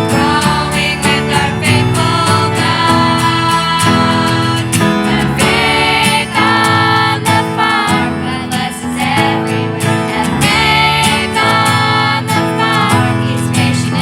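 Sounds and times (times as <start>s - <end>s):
person singing: 0.0s - 14.0s
strummed acoustic guitar: 0.0s - 14.0s.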